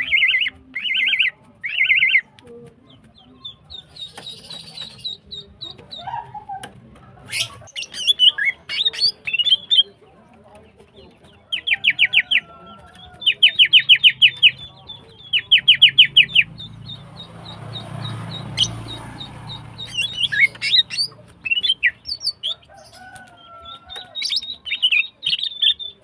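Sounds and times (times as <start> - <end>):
bird sharp chirps: 0.0 - 2.3, 7.3 - 10.0, 11.4 - 26.0
varied bird chirps: 0.0 - 6.4, 7.2 - 10.0, 10.6 - 26.0.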